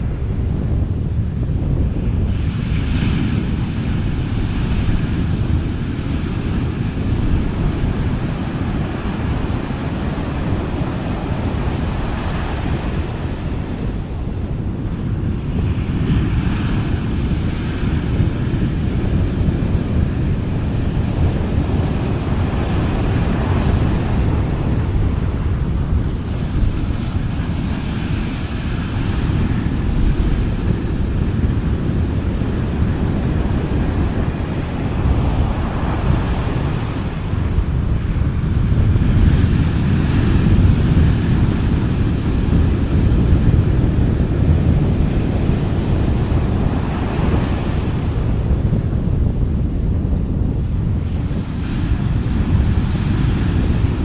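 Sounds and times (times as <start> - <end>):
small waves washing onto beach: 0.0 - 54.0
wind rumble on microphone: 0.0 - 54.0.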